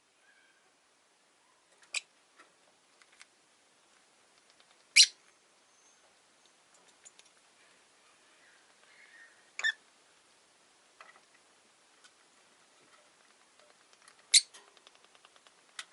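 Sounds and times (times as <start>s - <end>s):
lovebirds chirping: 4.8s - 9.9s, 13.0s - 14.5s
faint ticks: 13.3s - 15.9s.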